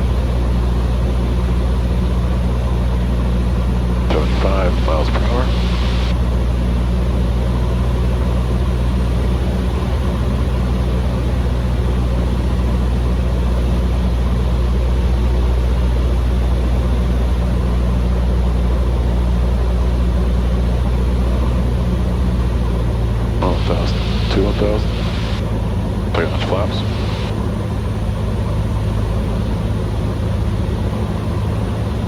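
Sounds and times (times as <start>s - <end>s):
airplane engine droning: 0.0s - 17.5s, 18.1s - 32.0s.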